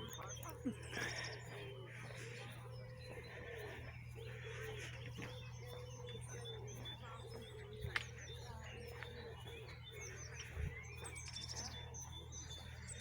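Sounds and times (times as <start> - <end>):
high bird chirps: 0.0 - 13.0
steady low hum: 0.0 - 13.0.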